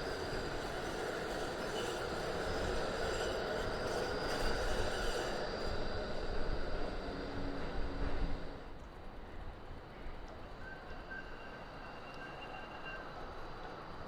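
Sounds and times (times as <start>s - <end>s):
tram motors: 0.0s - 9.1s
tram wheels on rails: 0.0s - 14.0s.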